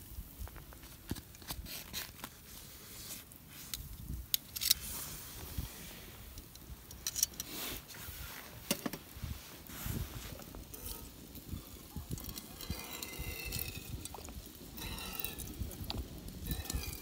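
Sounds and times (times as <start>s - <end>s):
wind rumble on microphone: 3.5s - 17.0s.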